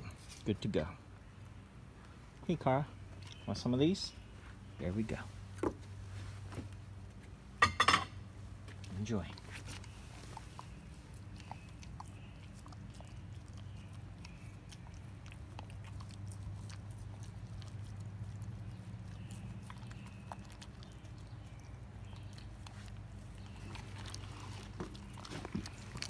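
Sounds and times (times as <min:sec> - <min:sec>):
dog teeth crunching on bone: 0:08.8 - 0:26.0.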